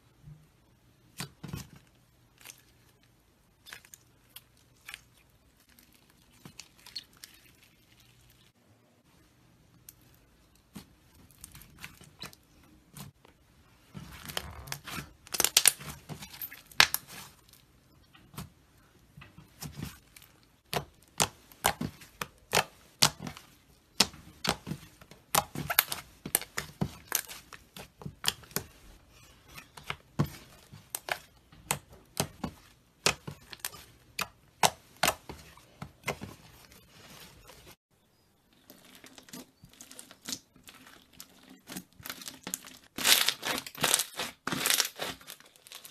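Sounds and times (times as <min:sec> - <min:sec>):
slime crackling and popping: 0:14.2 - 0:17.2, 0:38.8 - 0:45.9.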